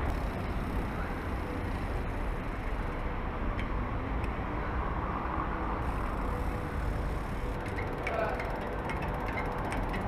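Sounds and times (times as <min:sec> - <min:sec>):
mountain bike rolling: 0:00.0 - 0:03.0, 0:05.8 - 0:10.0.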